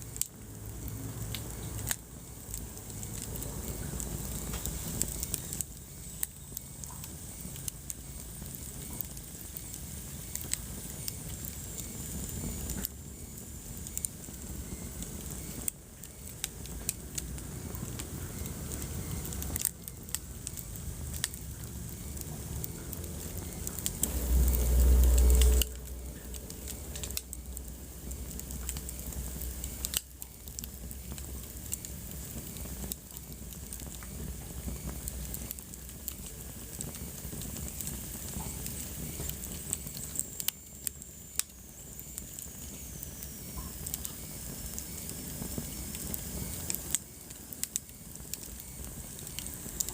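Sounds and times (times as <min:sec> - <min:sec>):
hiss of flame: 0:00.0 - 0:49.9
wood fire crackling: 0:00.0 - 0:49.9
deep low rumble: 0:21.0 - 0:31.4.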